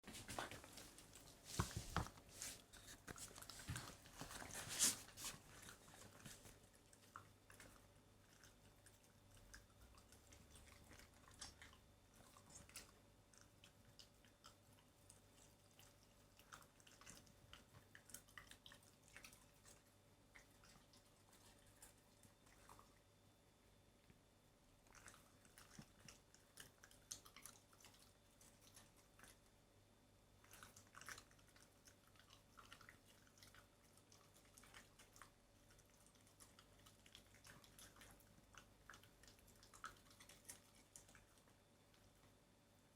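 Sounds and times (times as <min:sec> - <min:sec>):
dog chewing chicken: 0:30.4 - 0:41.5.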